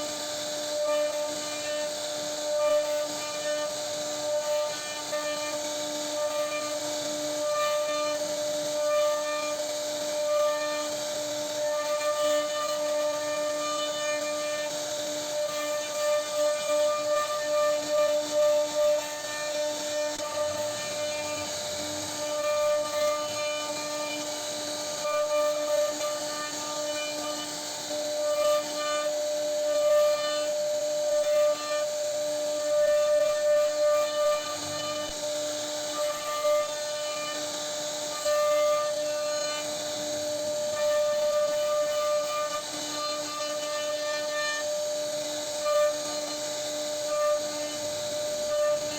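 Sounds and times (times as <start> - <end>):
bit cutting wood hiss: 0.0 - 48.9
router spindle whine: 0.0 - 48.9.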